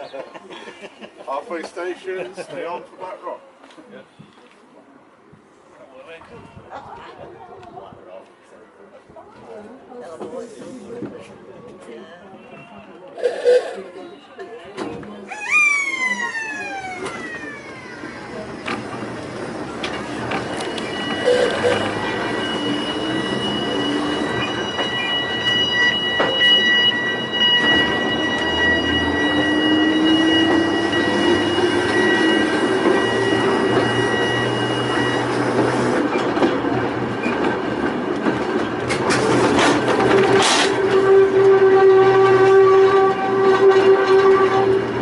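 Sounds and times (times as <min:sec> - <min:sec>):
railway car rumbling on track: 0:08.9 - 0:13.8, 0:14.7 - 0:45.0
wheels squealing: 0:15.3 - 0:37.5.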